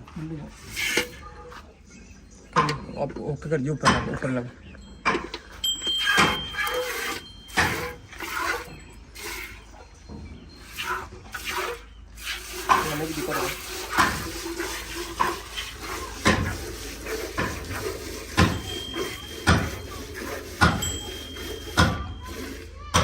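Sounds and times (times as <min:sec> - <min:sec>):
milk squirting into metal pail: 0:00.6 - 0:01.2, 0:06.0 - 0:09.8, 0:10.6 - 0:22.8.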